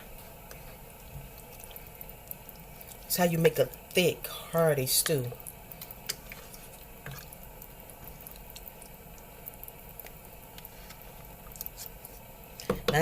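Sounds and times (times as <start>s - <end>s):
low steady hiss: 0.0s - 13.0s
stew ticking and popping: 0.1s - 4.1s, 5.0s - 10.7s.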